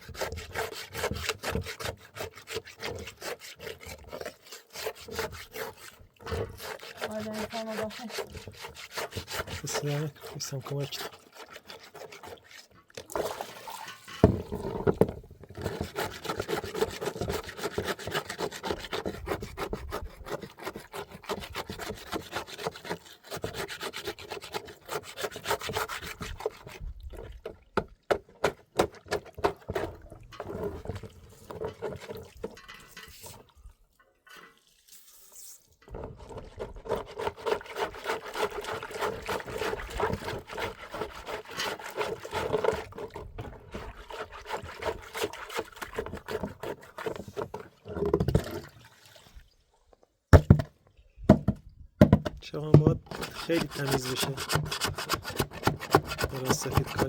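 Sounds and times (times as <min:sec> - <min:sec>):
scraping a wall: 0:00.0 - 0:12.6, 0:52.7 - 0:57.0.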